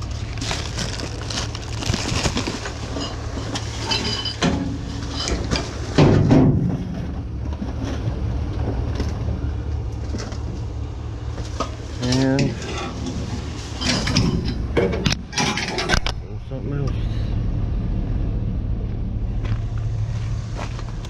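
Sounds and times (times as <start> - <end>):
junk clattering in dumpster: 0.0 - 16.1
low rumble: 0.0 - 21.0.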